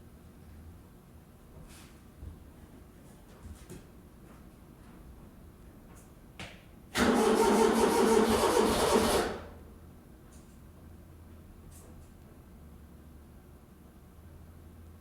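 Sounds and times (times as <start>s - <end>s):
tractor starter motor cranking: 7.0s - 9.5s.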